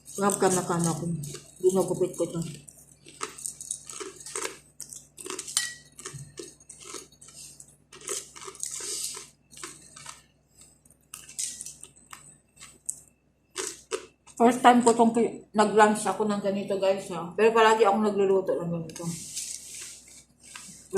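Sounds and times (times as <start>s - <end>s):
plastic packaging crinkling: 0.0s - 10.3s.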